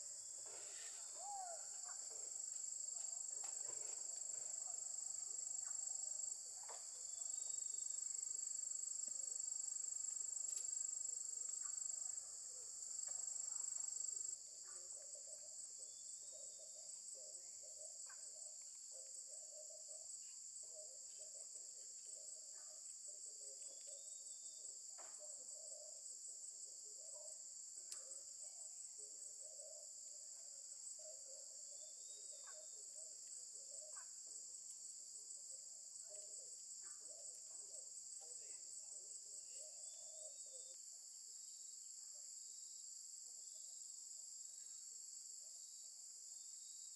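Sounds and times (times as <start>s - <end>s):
insects trilling: 0.0s - 6.3s.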